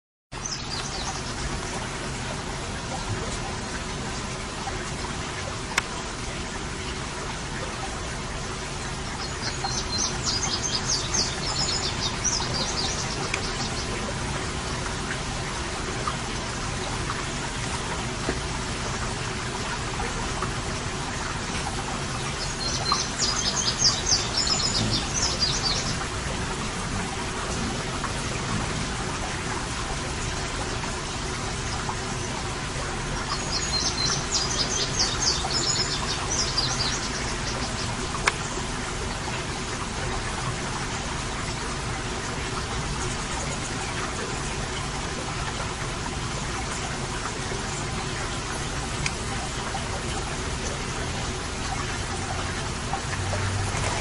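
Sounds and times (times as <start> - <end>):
steady background hiss: 0.4 - 54.0
bird chirping: 22.3 - 26.1.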